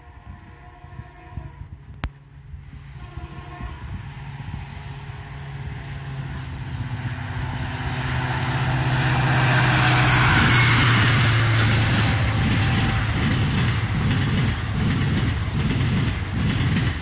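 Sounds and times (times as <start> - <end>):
diesel locomotive engine drone: 0.0 - 17.0
train wheels rattling on rails: 5.5 - 17.0.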